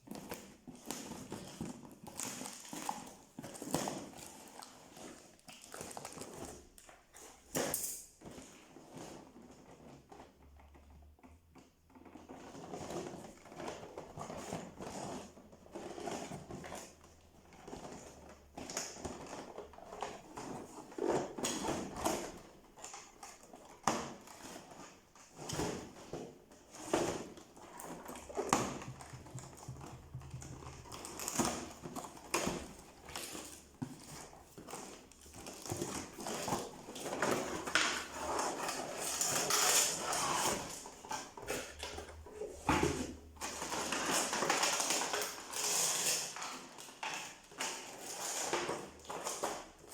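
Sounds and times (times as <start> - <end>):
packaging rustling: 25.7 - 49.9
cardboard and plastic knocks: 28.5 - 32.8.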